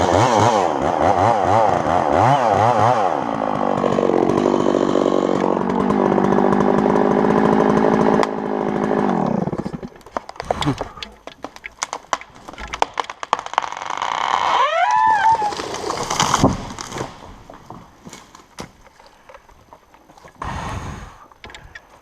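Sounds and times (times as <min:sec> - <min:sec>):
tree wood cracking and splintering: 0:00.0 - 0:20.4
tree crashing to the ground: 0:09.4 - 0:19.0
short rising-and-falling cry: 0:14.4 - 0:15.6.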